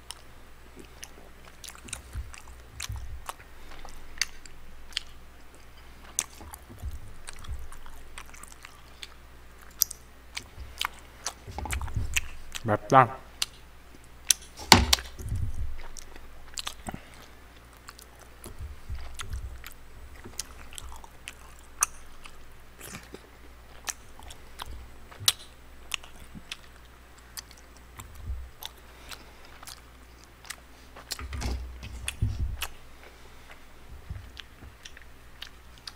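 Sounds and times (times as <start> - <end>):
person chewing and biting food: 0.0 - 12.7, 13.3 - 35.9
wet mouth sounds: 0.0 - 31.2
soft thuds: 1.8 - 5.0, 6.4 - 8.3, 10.5 - 12.6, 14.6 - 16.5, 18.4 - 21.1, 28.0 - 28.6, 31.0 - 33.0, 33.8 - 35.0.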